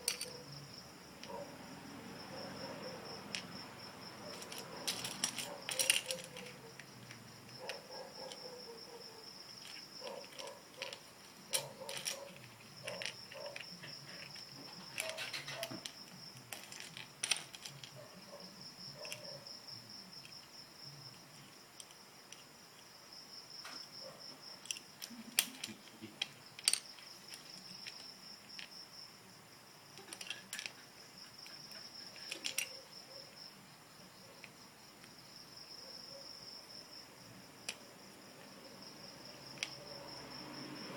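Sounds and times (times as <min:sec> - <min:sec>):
crickets chirping: 0:00.0 - 0:40.9
plastic bricks clicking and clattering: 0:04.2 - 0:08.5, 0:09.5 - 0:18.0, 0:24.6 - 0:28.8, 0:29.9 - 0:30.8, 0:31.5 - 0:32.8.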